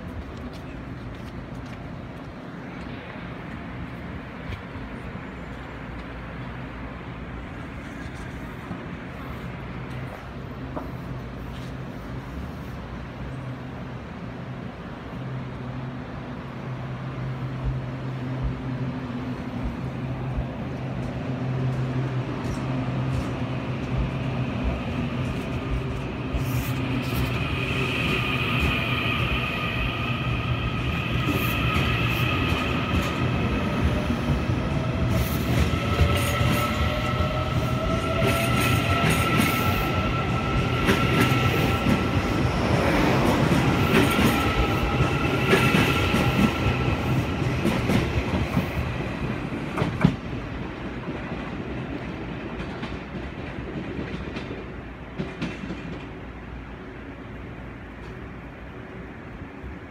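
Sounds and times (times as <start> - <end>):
electric train humming: 1.0 - 59.9
train wheels clacking: 22.4 - 50.4.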